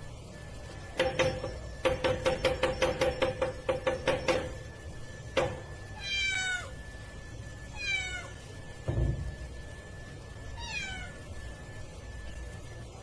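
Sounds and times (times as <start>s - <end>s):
cat meowing: 6.0s - 6.8s, 7.7s - 8.4s, 10.6s - 11.2s.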